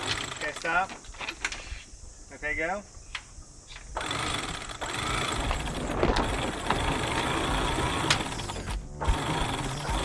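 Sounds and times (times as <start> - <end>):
winch running: 4.0 - 10.0.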